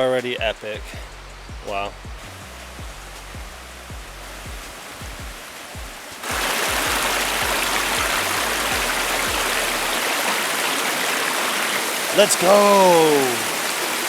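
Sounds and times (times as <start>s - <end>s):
music with kick drum and bass: 0.0s - 10.0s
rushing stream water: 1.6s - 14.0s.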